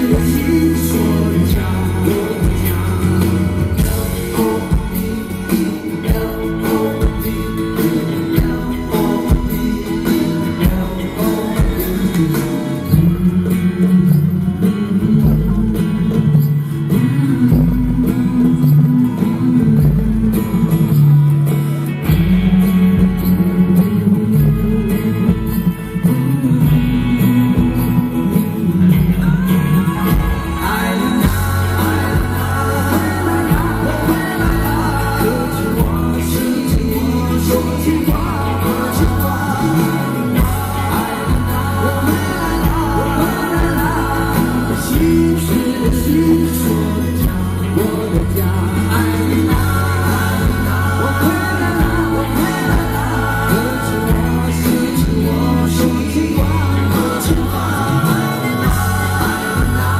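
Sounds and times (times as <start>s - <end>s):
man singing ballad: 0.0s - 59.9s
rock band playing live: 0.0s - 59.9s.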